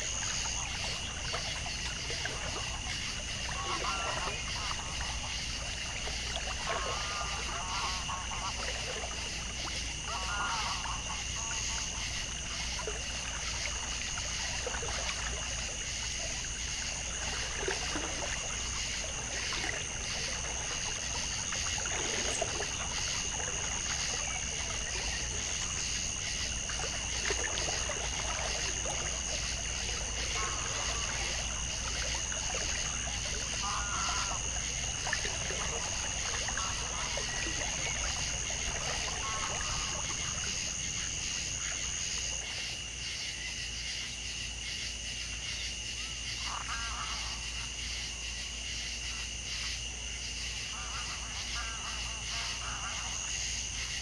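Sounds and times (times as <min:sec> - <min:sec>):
water trickling: 0:00.0 - 0:43.0.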